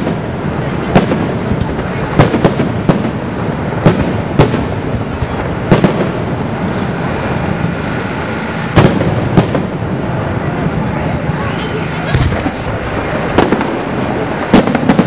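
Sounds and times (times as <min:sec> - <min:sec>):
fireworks crackle: 0:00.0 - 0:15.0
fireworks shells bursting: 0:10.6 - 0:15.0.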